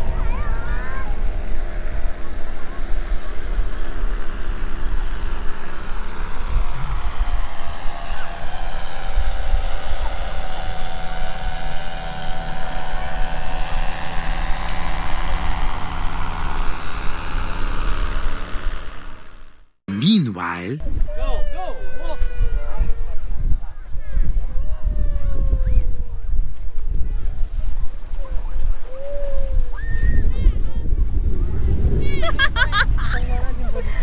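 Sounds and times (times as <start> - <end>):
wind buffeting microphone: 0.0 - 18.9, 22.3 - 34.0
motor running: 0.0 - 19.8.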